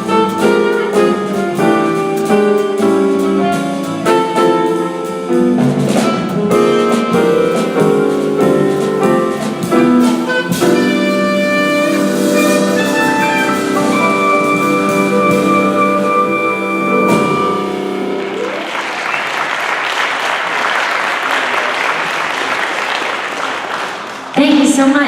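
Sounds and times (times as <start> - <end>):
drum hits: 0.0 - 18.5
jazz quartet playing: 0.0 - 19.2.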